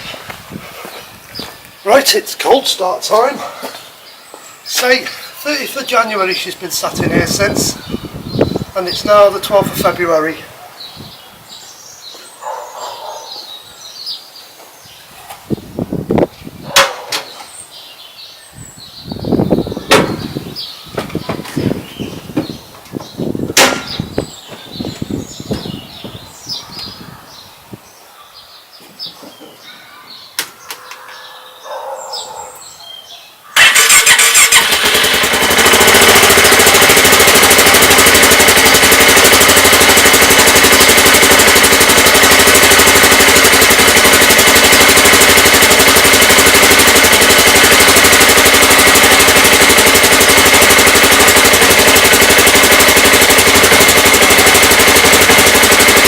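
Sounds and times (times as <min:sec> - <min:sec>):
engine starting and running: 0:06.3 - 0:10.0, 0:33.6 - 0:56.0.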